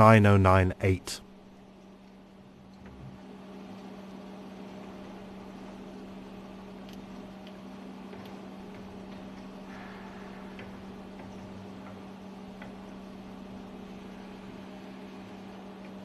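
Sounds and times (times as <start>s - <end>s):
engine room machinery hum: 0.0s - 16.0s.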